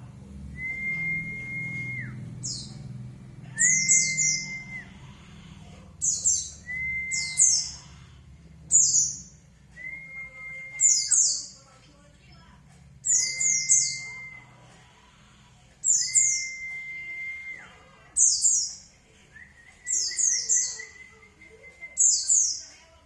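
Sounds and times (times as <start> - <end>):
bird twittering chirps: 1.3 - 2.9, 3.6 - 5.0, 6.0 - 8.0, 8.7 - 9.4, 10.7 - 11.6, 13.0 - 14.5, 18.2 - 18.9, 19.8 - 21.2
long whistled bird notes: 3.6 - 5.0, 6.0 - 7.9, 8.7 - 11.5, 13.0 - 14.6, 15.8 - 17.6.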